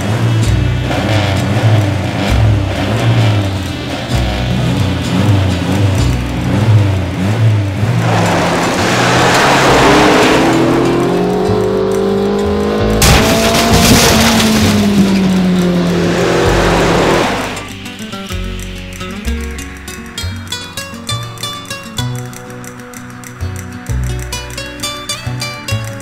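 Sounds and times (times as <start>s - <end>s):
car engine accelerating: 0.0s - 26.0s
music: 0.0s - 26.0s.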